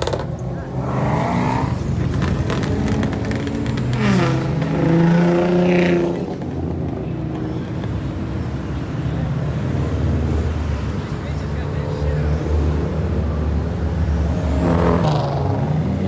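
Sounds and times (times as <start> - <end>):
engine revving: 0.0 - 6.9, 14.2 - 16.0
car engines in traffic: 0.0 - 16.0
motorcycle passing: 0.6 - 7.1.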